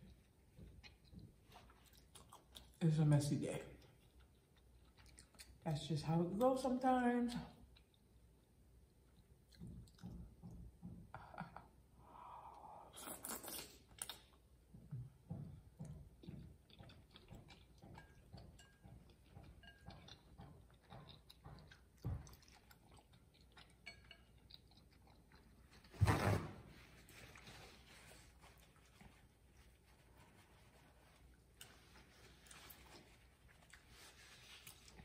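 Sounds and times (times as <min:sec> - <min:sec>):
mouth chewing chewy food: 0:00.0 - 0:26.0, 0:27.0 - 0:35.0
wet mouth clicks and smacks: 0:12.9 - 0:14.4.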